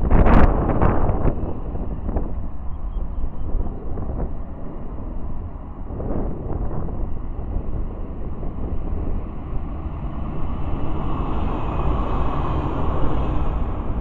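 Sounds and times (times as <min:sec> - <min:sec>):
distant train rumbling: 0:00.0 - 0:14.0
wind buffeting microphone: 0:00.0 - 0:14.0.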